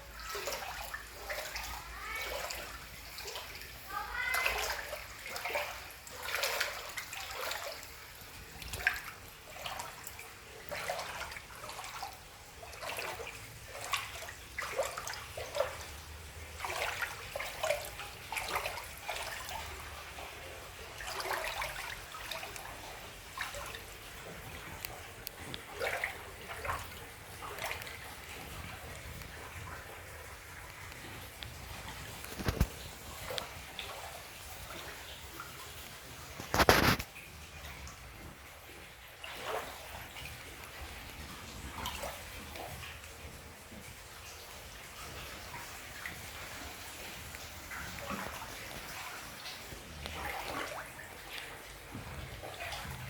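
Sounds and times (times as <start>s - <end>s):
floodwater splashing and gurgling: 0.0s - 53.0s
moving water wash: 0.0s - 53.0s.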